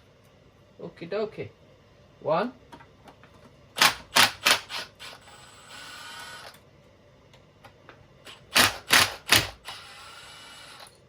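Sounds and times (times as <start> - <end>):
mechanical rattle: 8.3 - 11.0.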